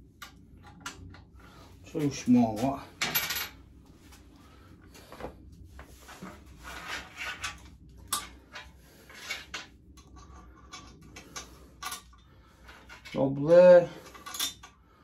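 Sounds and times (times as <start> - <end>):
small metal parts clicking: 14.0 - 14.8.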